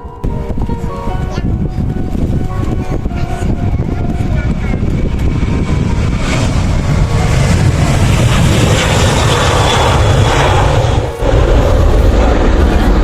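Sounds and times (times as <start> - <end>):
jet engines roaring: 1.6 - 13.0.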